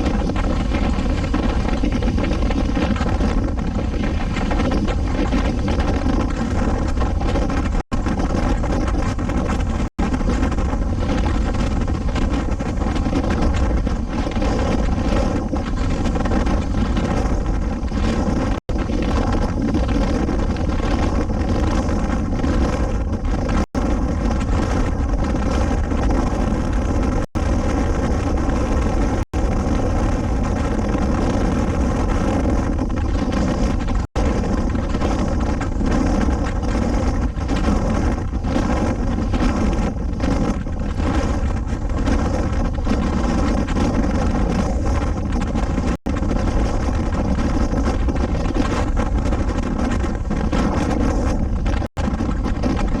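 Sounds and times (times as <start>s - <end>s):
wind noise on microphone: 0.0s - 53.0s.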